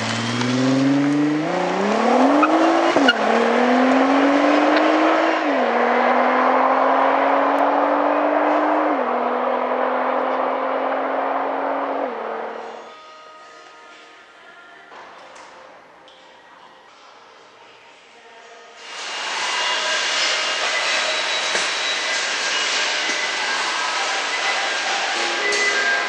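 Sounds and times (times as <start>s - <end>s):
car engine accelerating through gears: 0.0s - 12.7s.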